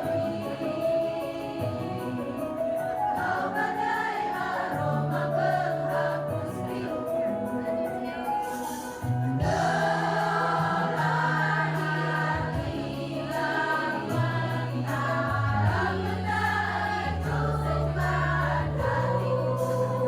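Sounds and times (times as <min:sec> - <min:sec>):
choir singing: 0:00.0 - 0:20.0
steady bass notes accompaniment: 0:09.2 - 0:20.0.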